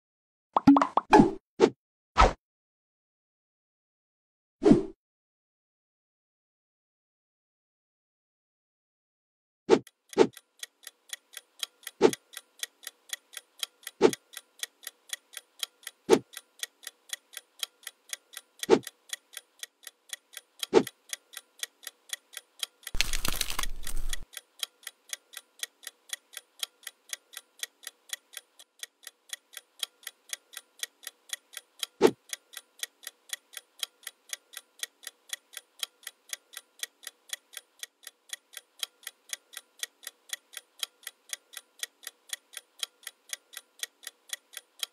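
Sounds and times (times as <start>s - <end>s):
steady ticking: 9.8s - 23.0s, 23.8s - 44.9s.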